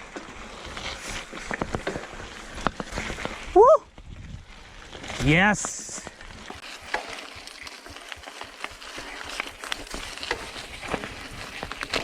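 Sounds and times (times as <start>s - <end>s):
bike tyres on dirt trail: 0.0s - 12.0s
bike rattling clicks and knocks: 4.7s - 12.0s.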